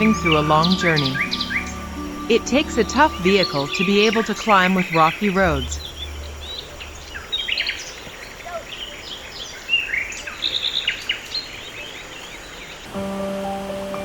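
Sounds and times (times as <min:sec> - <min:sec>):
music: 0:00.0 - 0:05.8, 0:12.9 - 0:14.0
birds chirping: 0:00.0 - 0:14.0
outdoor ambience hiss: 0:00.0 - 0:14.0.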